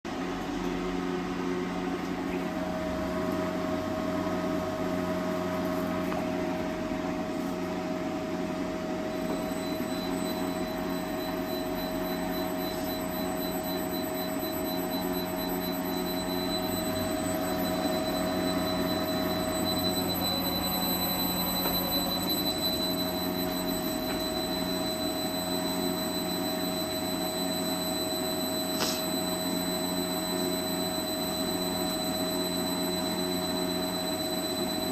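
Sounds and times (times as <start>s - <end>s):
electrical hum and fan noise: 0.1s - 34.9s
higher-pitched whine: 9.0s - 34.9s
whining tones: 9.0s - 34.9s.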